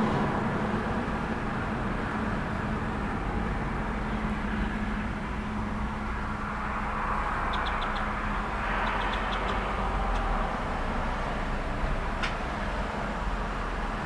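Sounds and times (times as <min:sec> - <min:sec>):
vehicle passing: 0:00.0 - 0:03.4
road traffic rumble: 0:00.0 - 0:14.0.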